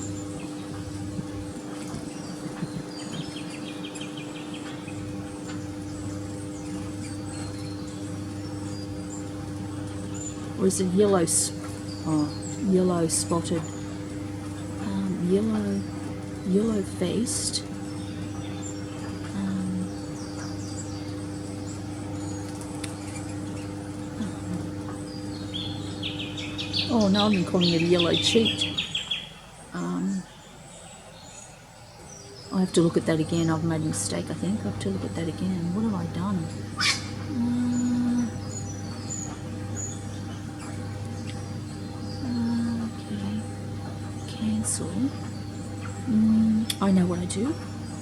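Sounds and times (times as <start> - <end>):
small birds chirping: 0.0 - 48.0
steady low hum: 0.0 - 48.0
bird trill: 24.4 - 33.6.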